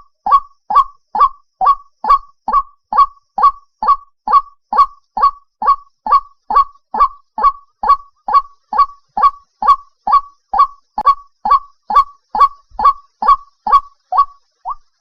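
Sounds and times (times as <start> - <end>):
waterhen calling: 0.0 - 14.8.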